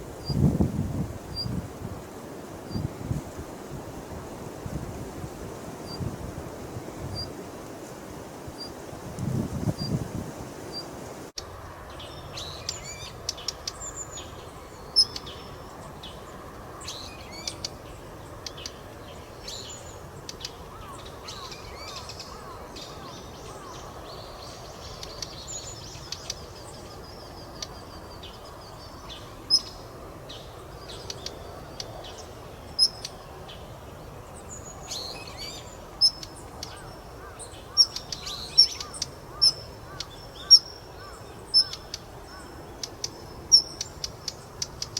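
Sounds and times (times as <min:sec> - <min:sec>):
steady background hiss: 0:00.0 - 0:44.9
bird dry sharp clicks: 0:43.8 - 0:44.9.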